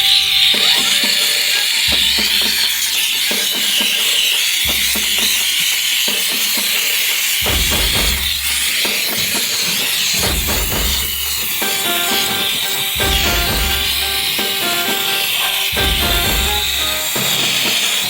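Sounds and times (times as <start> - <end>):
steam cleaner hissing: 0.1 - 18.0
background music with deep bass: 11.7 - 17.4.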